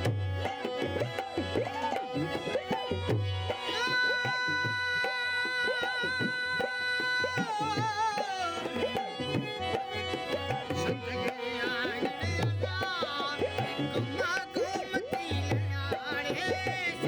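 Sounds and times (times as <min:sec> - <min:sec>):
hand drum rhythm: 0:00.0 - 0:17.0.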